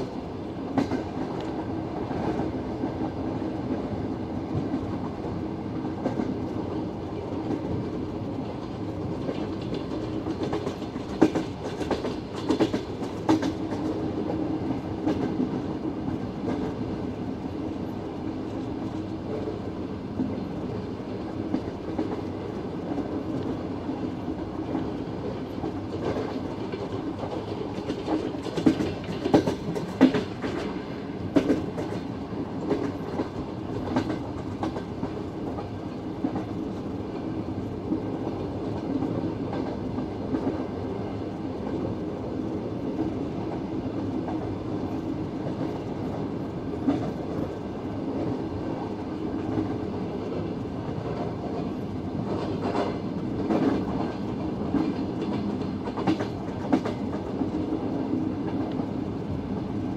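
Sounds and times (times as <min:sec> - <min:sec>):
train rolling rumble: 0:00.0 - 0:59.9.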